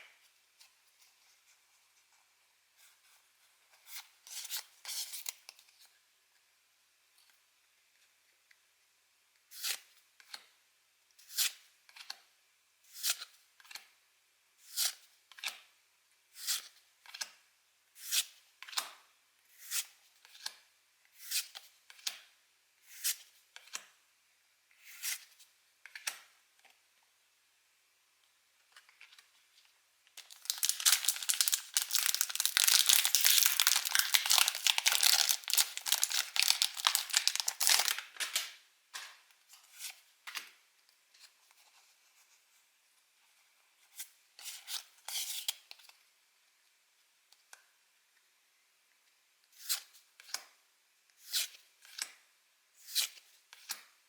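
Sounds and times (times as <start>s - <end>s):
foil wrapper crinkling and tearing: 30.2s - 38.4s.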